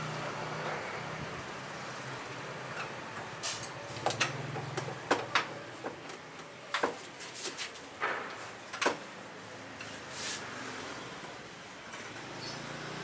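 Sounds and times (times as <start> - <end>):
hard objects clicking and knocking: 3.6 - 7.2.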